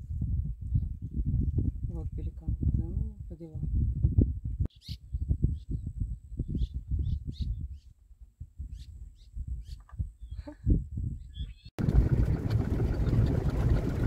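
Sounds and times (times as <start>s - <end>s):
wind buffeting microphone: 0.0s - 14.0s
birds chirping: 4.7s - 7.9s, 11.2s - 11.7s.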